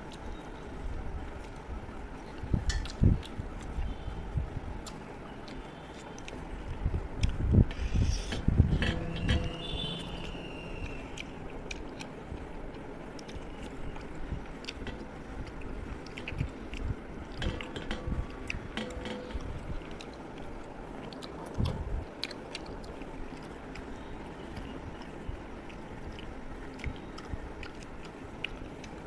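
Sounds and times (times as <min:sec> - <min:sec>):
chewing and mouth noises: 0:01.4 - 0:04.1, 0:04.7 - 0:08.4, 0:09.6 - 0:29.0
wet clicks and squishes: 0:02.3 - 0:03.8.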